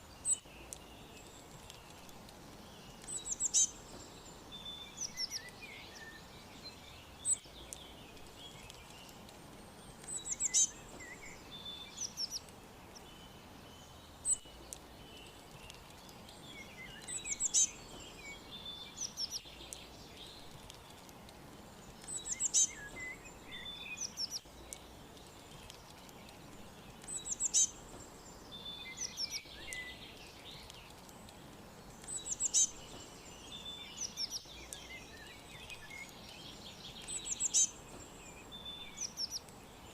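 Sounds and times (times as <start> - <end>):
background hiss: 0.0 - 39.9
songbirds chirping and singing: 0.0 - 39.9.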